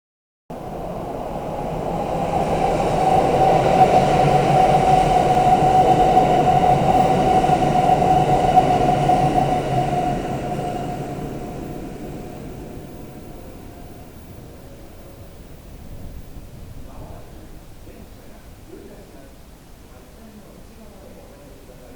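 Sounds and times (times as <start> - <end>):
train wheels rumbling on rail: 0.5 - 14.4
train whine: 0.5 - 18.3.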